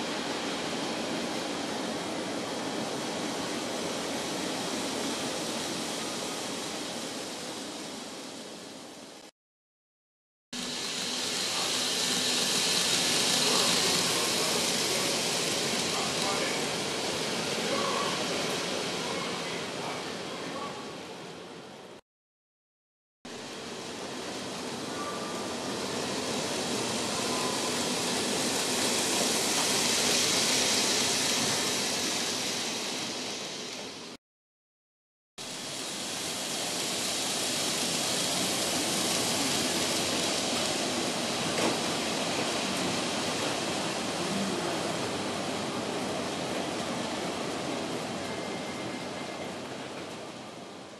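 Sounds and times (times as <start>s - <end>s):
model train wheels on rail: 10.6s - 20.0s, 23.4s - 34.2s, 35.4s - 50.9s.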